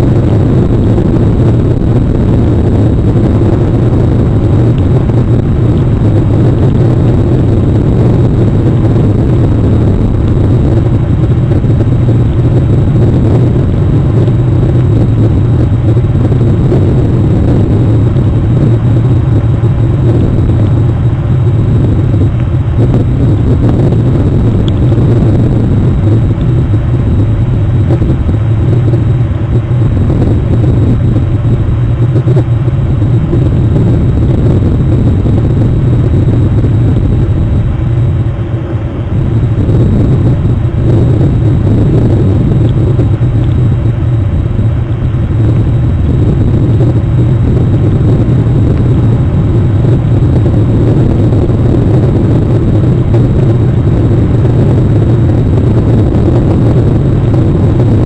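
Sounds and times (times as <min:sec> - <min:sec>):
faint high whine: 0:00.0 - 0:58.0
rain rumbling: 0:00.0 - 0:58.0.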